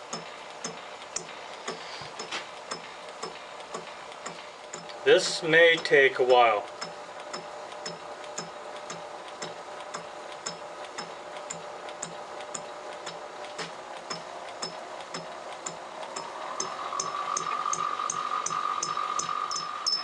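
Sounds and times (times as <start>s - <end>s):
fly cutter ticking: 0.0s - 20.0s
high steady whine: 0.0s - 20.0s
lathe running hum: 0.0s - 20.0s.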